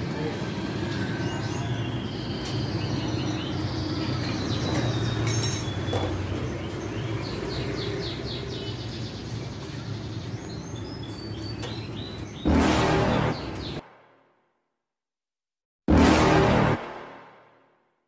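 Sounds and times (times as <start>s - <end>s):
small birds twittering: 0.0s - 13.8s.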